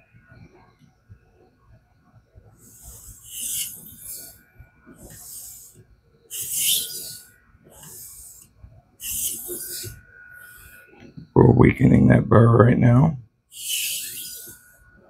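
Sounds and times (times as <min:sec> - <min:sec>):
knife scraping on whetstone: 0:02.6 - 0:04.4, 0:05.0 - 0:10.8, 0:13.6 - 0:14.7.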